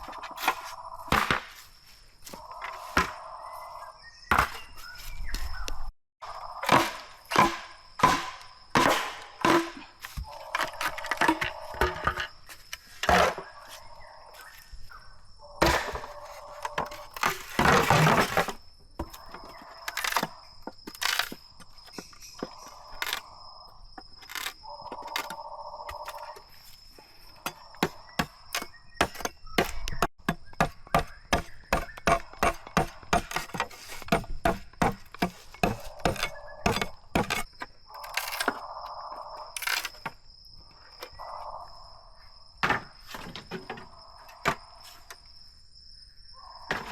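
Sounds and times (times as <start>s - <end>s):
machete chopping bamboo: 0.4s - 1.6s, 6.6s - 10.2s, 27.5s - 37.5s.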